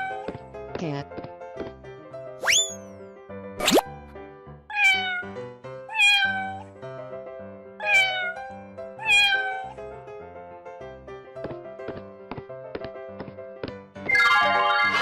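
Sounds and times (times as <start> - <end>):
light background music: 0.0 - 15.0
cat meowing: 4.7 - 6.7, 7.8 - 8.4, 9.0 - 9.8.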